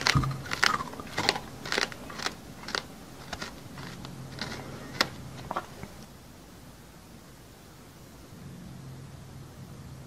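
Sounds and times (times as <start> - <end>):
crunchy chewing: 0.0 - 6.1.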